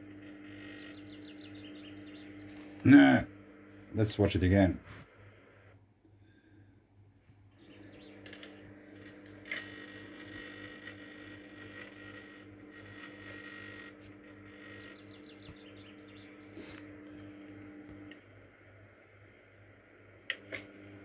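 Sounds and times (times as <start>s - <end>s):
microwave buzz with hiss: 0.0s - 5.9s, 7.6s - 21.0s
microwave oven hum: 0.0s - 6.4s, 7.5s - 21.0s.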